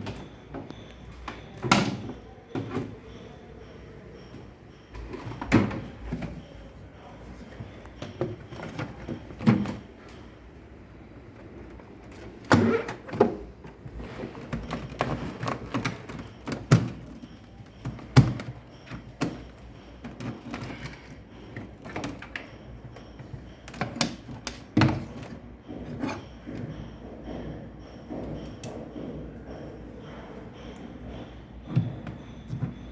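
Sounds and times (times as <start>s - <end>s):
knocks and thunks of tools: 0.0s - 3.2s, 12.0s - 32.9s.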